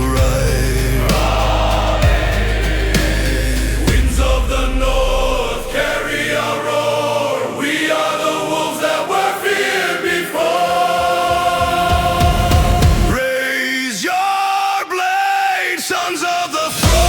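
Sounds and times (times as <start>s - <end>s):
deep drums: 0.0s - 6.2s, 11.5s - 13.2s
choir singing long notes: 0.0s - 14.9s, 16.5s - 17.0s.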